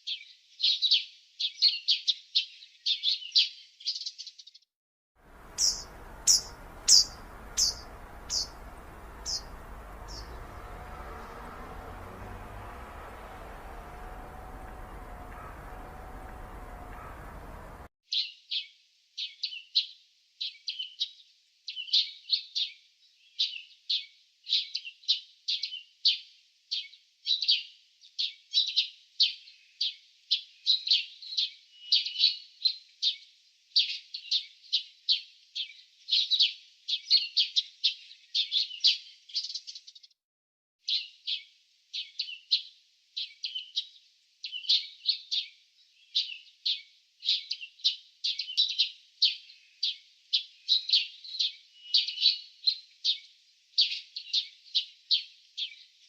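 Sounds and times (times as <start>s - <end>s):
small birds chirping: 5.3s - 18.3s, 40.8s - 56.0s.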